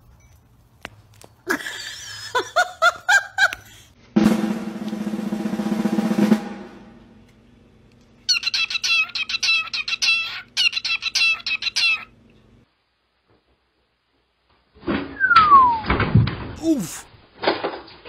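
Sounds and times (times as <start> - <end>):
cockatiel chirping: 8.3 - 12.1.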